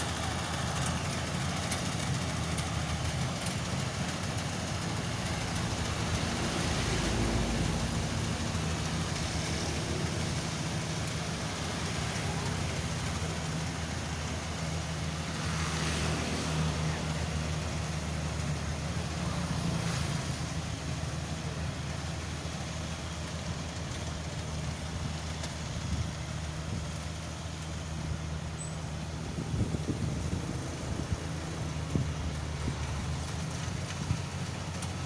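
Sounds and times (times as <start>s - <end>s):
threshing machine engine hum: 0.0s - 35.0s.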